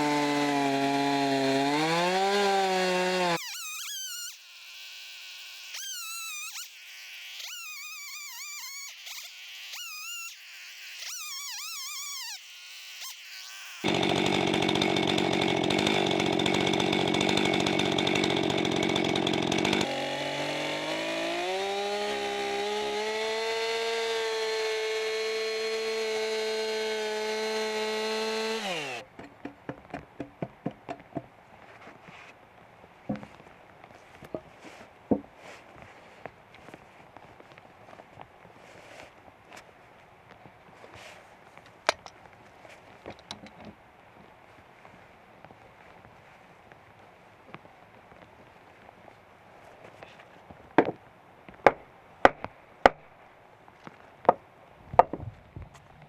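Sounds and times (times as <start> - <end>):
chainsaw cutting timber: 0.0 - 29.1.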